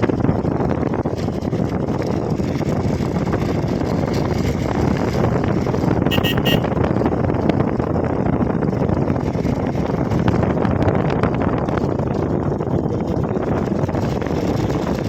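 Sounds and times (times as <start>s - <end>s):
wind rushing over microphone: 0.0s - 15.0s
vehicle horn beeps: 6.1s - 6.8s.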